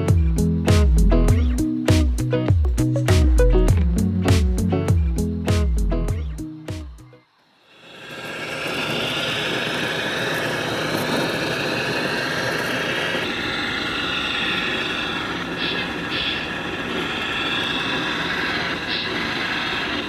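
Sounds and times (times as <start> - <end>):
model machines mechanical whine: 7.2 - 20.0.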